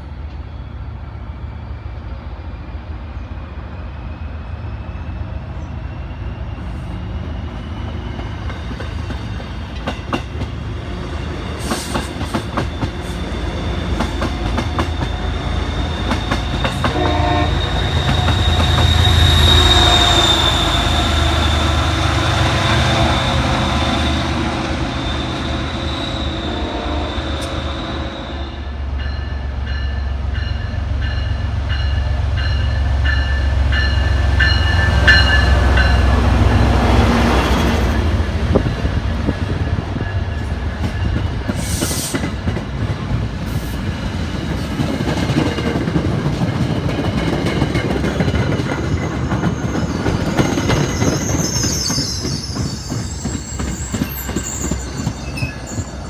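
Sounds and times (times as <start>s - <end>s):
diesel locomotive engine rumble: 0.0s - 56.0s
train wheels clicking over rail joints: 11.6s - 17.1s, 38.6s - 55.4s
train horn: 16.6s - 29.4s.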